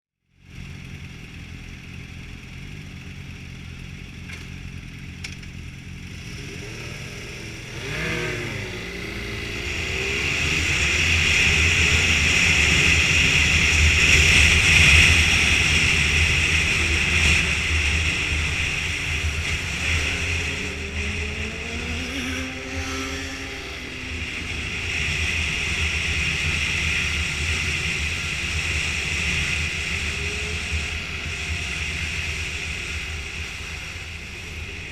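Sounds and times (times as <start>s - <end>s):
motorcycle engine accelerating: 0.3s - 34.9s.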